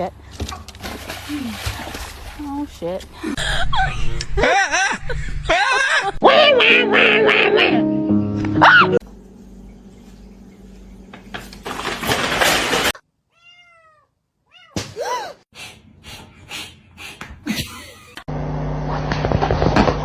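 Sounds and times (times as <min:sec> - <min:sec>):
cat meowing: 0:13.3 - 0:14.8.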